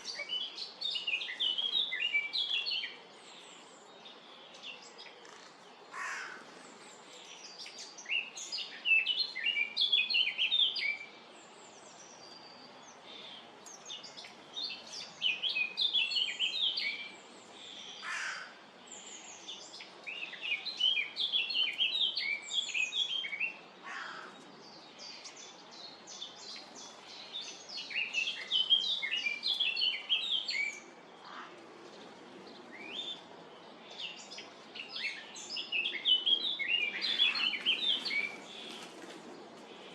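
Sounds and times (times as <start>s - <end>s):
starlings chirping and chattering: 18.9s - 39.9s.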